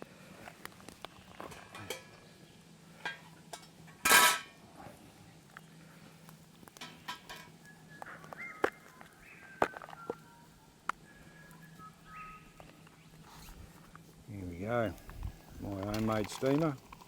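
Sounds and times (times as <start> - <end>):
metal cookware clatter: 1.4 - 2.2, 3.0 - 4.6
metal cookware clinking: 1.5 - 2.2, 3.0 - 4.6.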